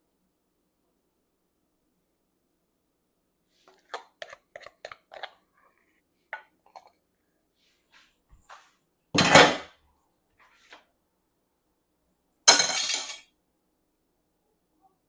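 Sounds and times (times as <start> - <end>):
dishes clattering crash: 9.2 - 9.7, 12.5 - 13.2
dishes and utensils clinking: 12.5 - 13.2.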